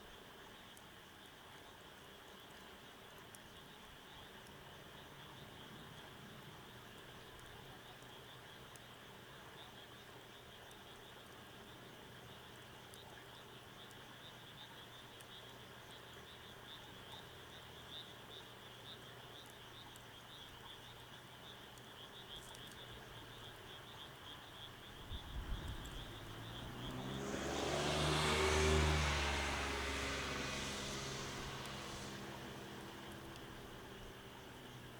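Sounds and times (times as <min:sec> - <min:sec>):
pulsing frog or insect calls: 0:09.6 - 0:34.9
vehicle engine hum: 0:25.1 - 0:34.9.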